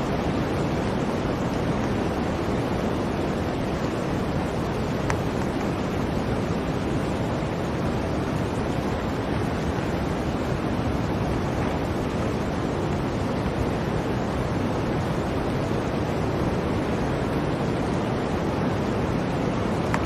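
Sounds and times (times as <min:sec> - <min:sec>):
blizzard wind blowing: 0:00.0 - 0:20.0.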